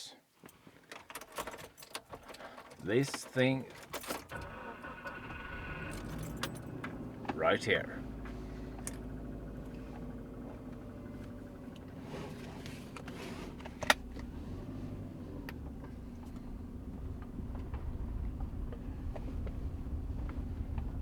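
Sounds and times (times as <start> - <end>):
car engine humming: 2.8 - 21.0.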